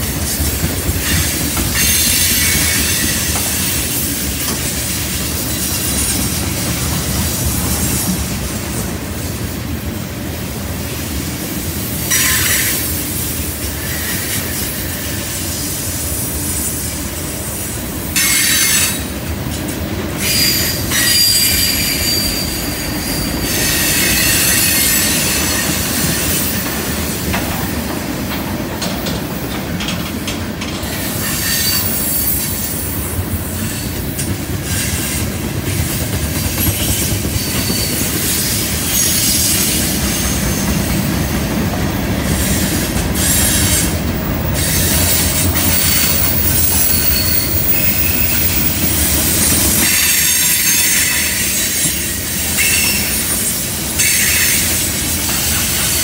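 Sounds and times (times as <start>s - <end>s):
train wheels rumbling on rails: 0.0s - 56.0s
wheel squeals: 20.2s - 27.4s, 30.9s - 33.0s, 36.5s - 41.0s, 42.3s - 56.0s.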